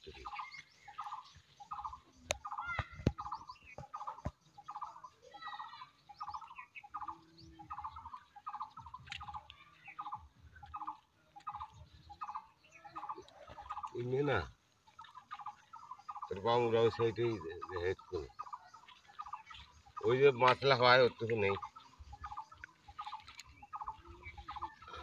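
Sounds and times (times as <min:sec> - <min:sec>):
bird calling: 0:00.0 - 0:25.0.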